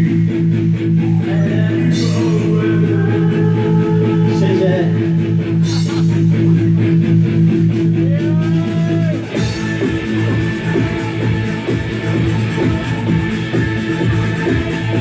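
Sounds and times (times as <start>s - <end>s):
electric guitars sustained chords: 0.0s - 15.0s
cymbal steady rhythm: 5.4s - 15.0s.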